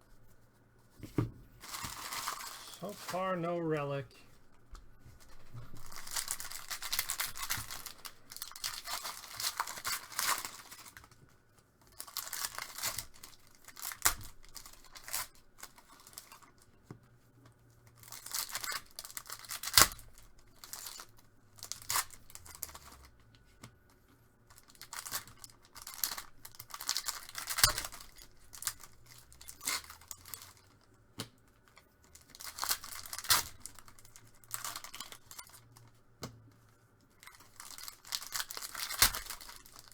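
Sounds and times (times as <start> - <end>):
wrappers tearing and crinkling: 1.6 - 3.4, 5.2 - 11.2, 11.9 - 16.6, 18.0 - 23.1, 24.4 - 30.8, 32.0 - 35.9, 37.2 - 39.9.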